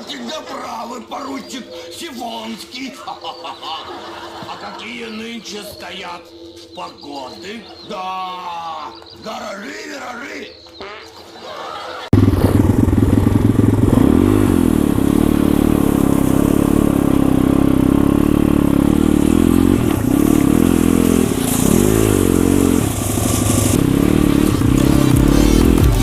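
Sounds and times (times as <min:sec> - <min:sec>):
pit bike engine revving: 0:12.1 - 0:26.0.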